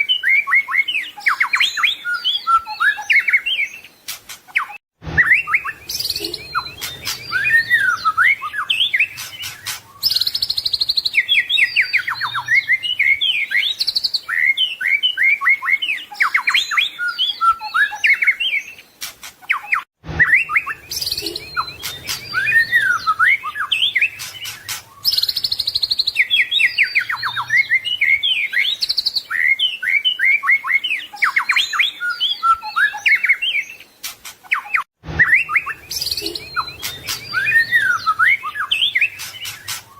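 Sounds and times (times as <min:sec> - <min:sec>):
bird singing varied whistles and trills: 0:00.0 - 0:39.9.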